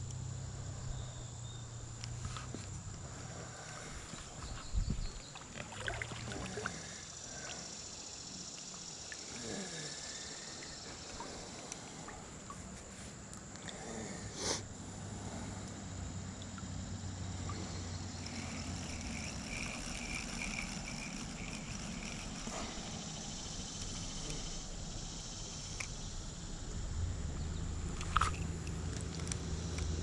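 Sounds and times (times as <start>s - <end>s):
insects chirping and trilling: 0.0s - 30.0s
small clicks: 28.0s - 30.0s.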